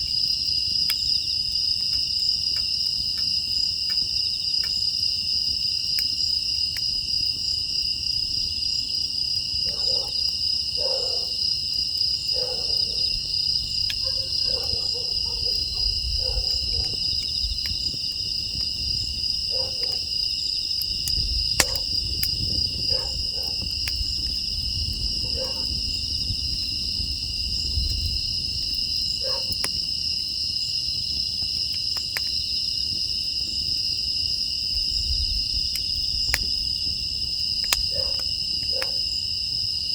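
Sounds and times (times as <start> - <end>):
crickets chirring: 0.0 - 39.9
wood fire crackling: 0.0 - 39.9
dog barking: 9.6 - 11.4, 12.3 - 13.2, 14.0 - 17.0, 19.5 - 20.1, 21.6 - 21.9, 22.9 - 23.6, 25.2 - 25.8, 29.2 - 29.6, 37.9 - 39.1.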